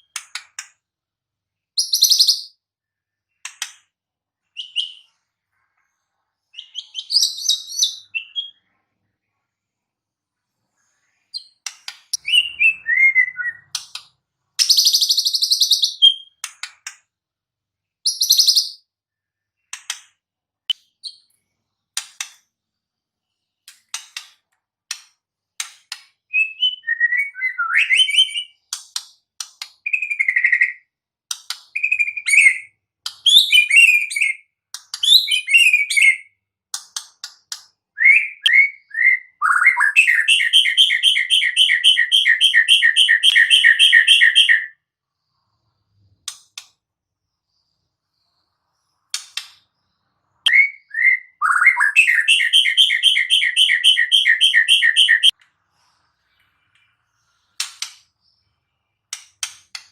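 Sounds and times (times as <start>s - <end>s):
bird singing varied song: 1.6s - 3.6s, 4.4s - 8.8s, 10.7s - 16.9s, 17.8s - 19.9s, 26.2s - 28.8s, 29.8s - 31.0s, 31.6s - 36.5s, 37.2s - 55.4s.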